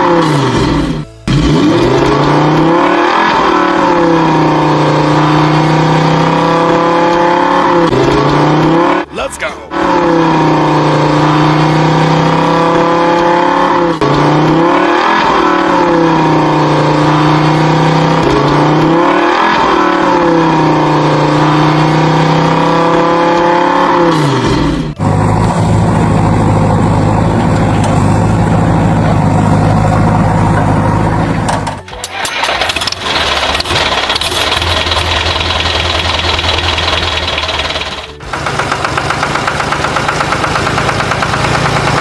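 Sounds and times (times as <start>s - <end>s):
engine drone: 0.0s - 42.0s.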